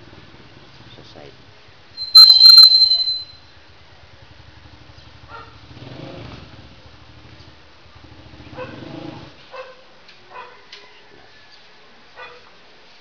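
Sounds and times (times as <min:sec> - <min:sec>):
dog barking: 0:05.3 - 0:05.6, 0:08.6 - 0:08.8, 0:09.5 - 0:11.0, 0:12.2 - 0:12.6.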